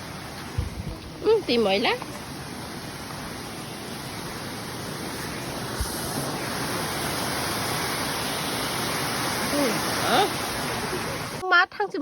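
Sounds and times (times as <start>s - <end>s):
waterfall rushing: 0.0s - 11.4s
low thump: 0.5s - 1.0s.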